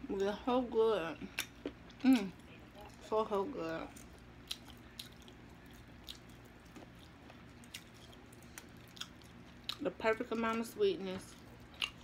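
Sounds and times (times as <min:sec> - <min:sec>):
faint chewing: 0:03.8 - 0:10.6, 0:11.2 - 0:12.0.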